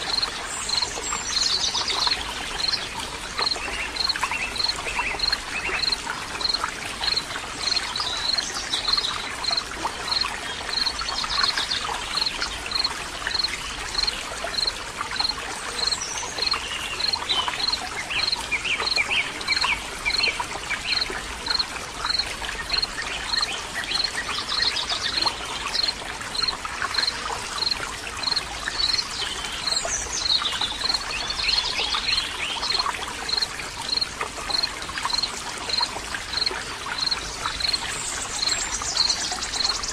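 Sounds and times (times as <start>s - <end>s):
water trickling: 0.0s - 39.9s
birds chirping: 3.4s - 35.3s.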